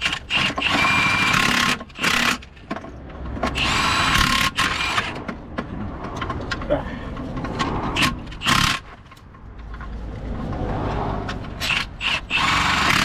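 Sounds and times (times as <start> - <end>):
power tool motor whirring: 11.6 - 13.0.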